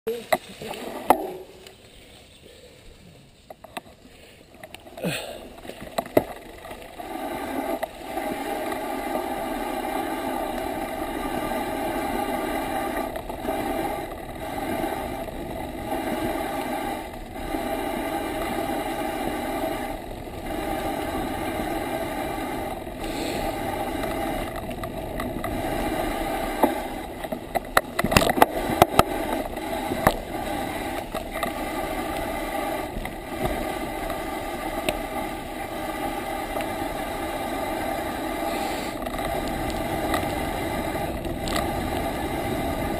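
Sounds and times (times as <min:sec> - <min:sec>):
bicycle tyre hum: 0:00.1 - 0:42.9
bicycle knocks and rattles: 0:00.4 - 0:01.7.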